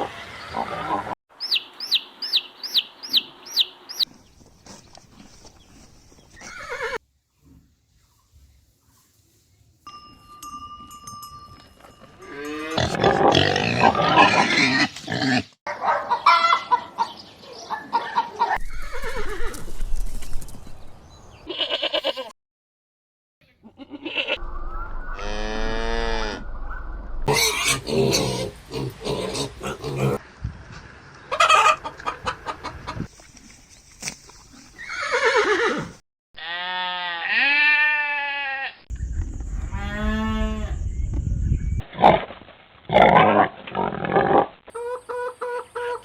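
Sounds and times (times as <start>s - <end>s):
goats bleating: 21.5s - 22.3s, 36.4s - 38.8s.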